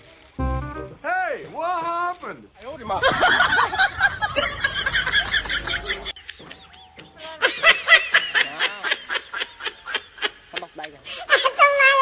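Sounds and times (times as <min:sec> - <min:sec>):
high-pitched laughter: 0:03.0 - 0:10.4.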